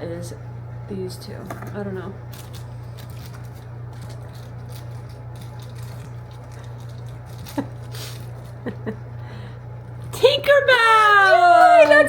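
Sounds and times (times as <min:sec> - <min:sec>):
low room hum: 0:00.0 - 0:12.0
packaging rustling and crinkling: 0:02.3 - 0:08.7.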